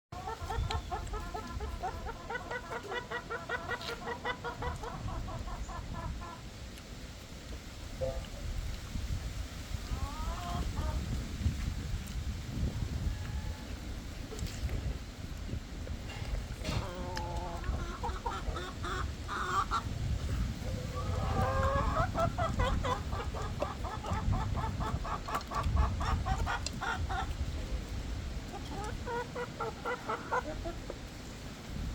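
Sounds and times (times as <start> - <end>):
hens clucking: 0.2 - 6.6, 9.8 - 11.5, 15.4 - 31.4
low wind rumble: 0.2 - 31.9.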